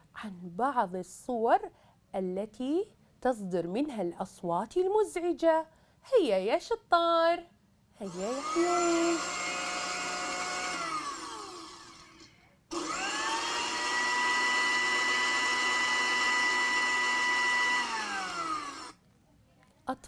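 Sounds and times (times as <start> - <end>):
electric blender motor whining: 8.1 - 19.0.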